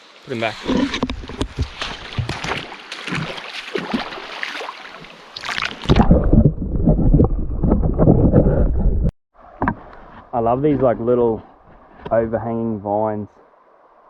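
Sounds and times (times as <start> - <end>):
water splashing and sloshing: 0.0 - 8.8.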